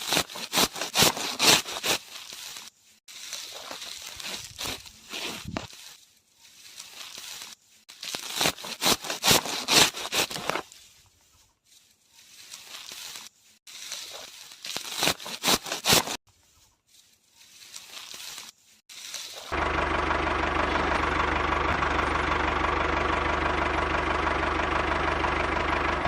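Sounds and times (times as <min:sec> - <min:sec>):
grass rustling and crackling: 0:00.0 - 0:19.6.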